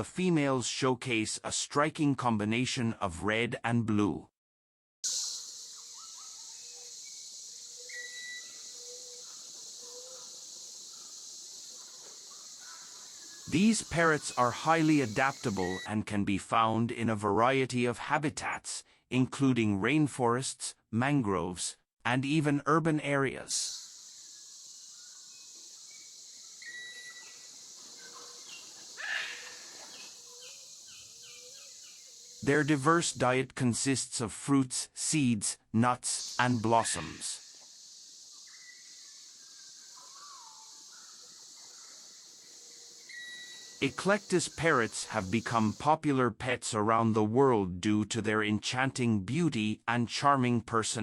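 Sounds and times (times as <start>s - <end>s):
outdoor ambience hiss: 5.0s - 15.9s, 23.0s - 46.8s
birds whistling short notes: 5.1s - 10.3s, 14.2s - 15.8s, 25.9s - 32.1s, 43.1s - 45.8s
loud bird call: 5.1s - 15.8s, 25.8s - 32.8s.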